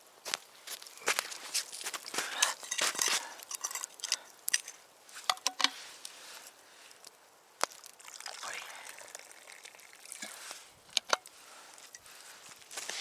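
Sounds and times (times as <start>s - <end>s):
dry wood crackling and snapping: 0.3s - 8.2s.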